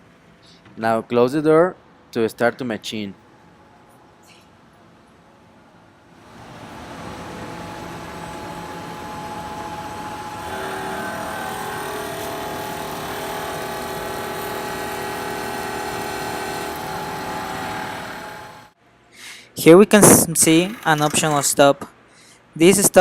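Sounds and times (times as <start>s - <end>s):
milling machine whining: 7.9s - 18.7s, 20.4s - 21.6s.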